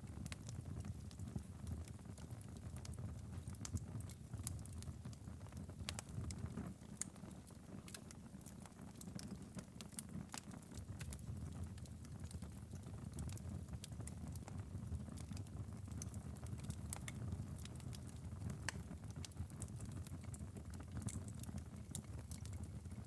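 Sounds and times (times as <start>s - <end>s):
fire popping and snapping: 0.0s - 23.0s
fire rumbling: 10.2s - 23.0s.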